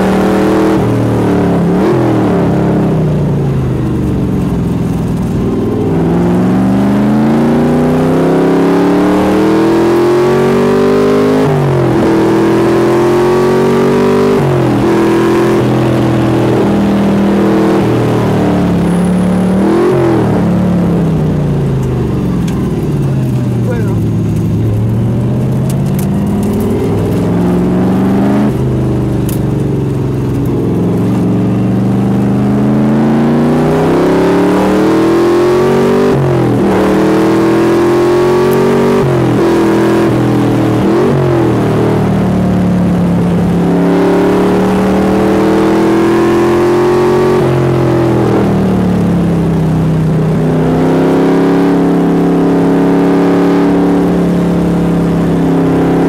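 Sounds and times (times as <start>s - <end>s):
engine accelerating through gears: 0.0s - 56.0s.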